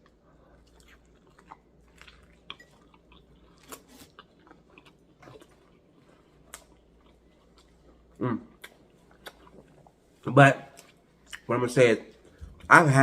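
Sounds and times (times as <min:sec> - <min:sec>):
person chewing food: 0:00.0 - 0:11.5.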